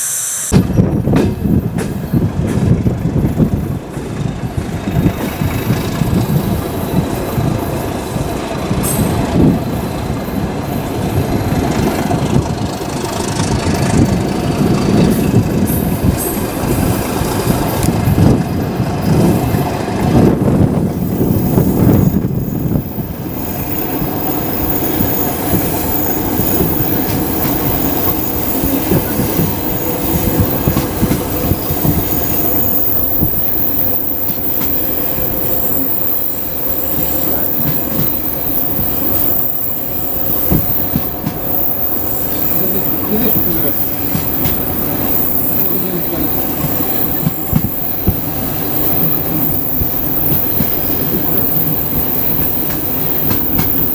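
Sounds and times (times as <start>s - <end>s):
train rolling along rails: 0.0s - 53.9s
train wheels squealing: 4.8s - 12.7s, 21.0s - 53.9s.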